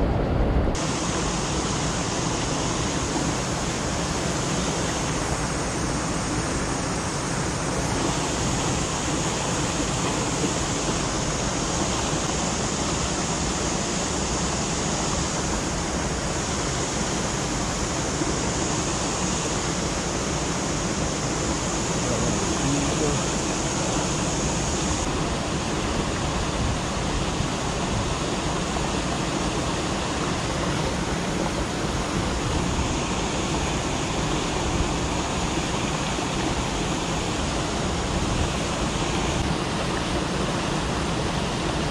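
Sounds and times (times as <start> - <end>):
river water rushing over rocks: 0.1 - 41.9.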